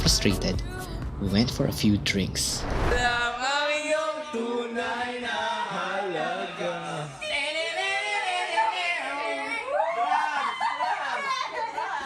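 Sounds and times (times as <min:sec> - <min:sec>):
voices singing: 0:03.0 - 0:12.0.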